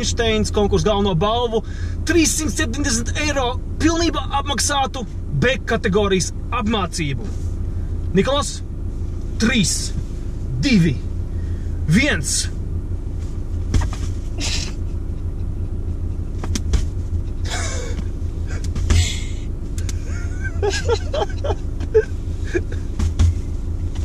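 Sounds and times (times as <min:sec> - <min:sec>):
car engine idling: 0:00.0 - 0:24.0
people laughing: 0:20.0 - 0:22.8.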